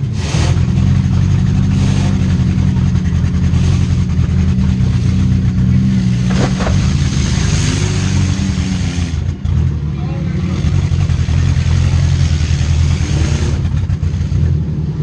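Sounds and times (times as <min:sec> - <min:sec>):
car engine revving: 0:00.0 - 0:15.0
short clatter: 0:06.2 - 0:07.1.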